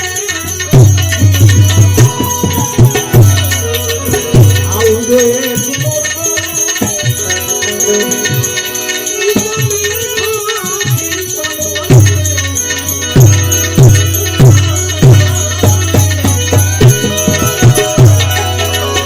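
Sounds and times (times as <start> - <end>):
devotional folk music melody: 0.0 - 19.0
steady jingling rattle: 0.0 - 19.0
deep drum beats: 0.7 - 6.0.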